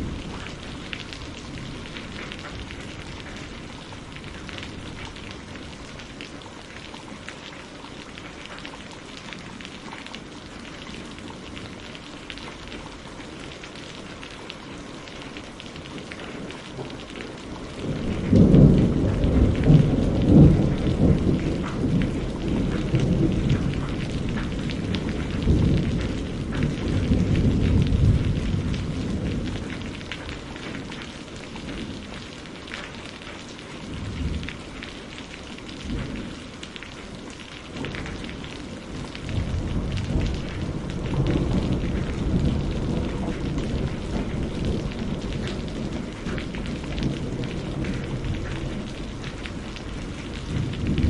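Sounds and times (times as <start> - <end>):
steady rain: 0.0 - 51.0
thunder rumbling: 16.2 - 32.2, 37.7 - 51.0.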